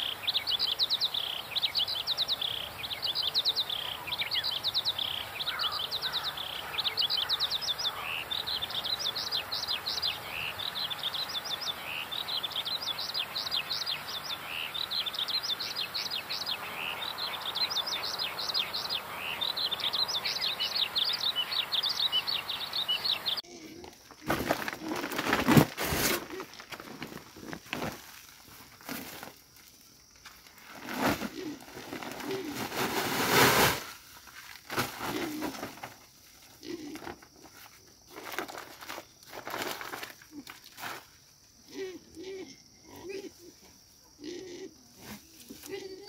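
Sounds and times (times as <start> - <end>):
small birds chirping: 0.0 - 25.0
rustling: 23.8 - 41.2.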